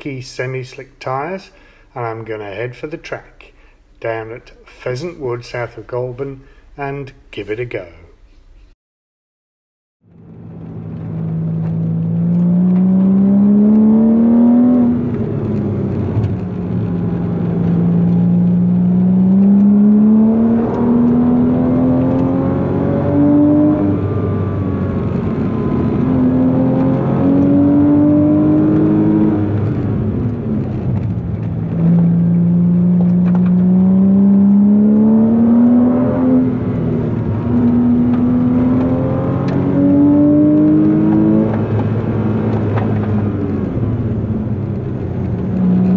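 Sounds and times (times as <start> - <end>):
car engine revving: 10.1 - 45.9.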